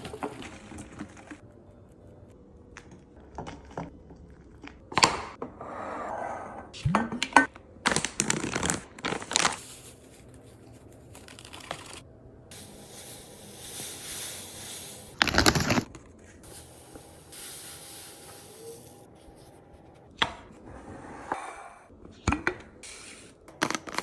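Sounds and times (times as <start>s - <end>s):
packaging rustling: 7.9s - 12.0s.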